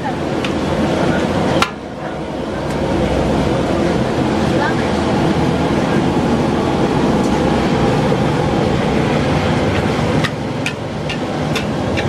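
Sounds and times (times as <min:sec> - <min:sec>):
gas burner roaring: 0:00.0 - 0:12.0.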